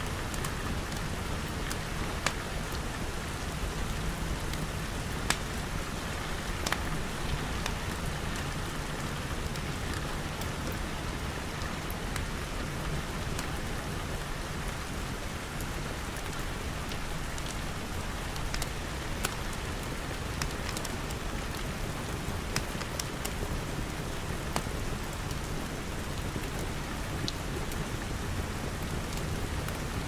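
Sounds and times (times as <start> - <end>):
rain pattering on glass roof: 0.0 - 30.0
wood fire popping: 1.5 - 2.8, 4.5 - 8.5.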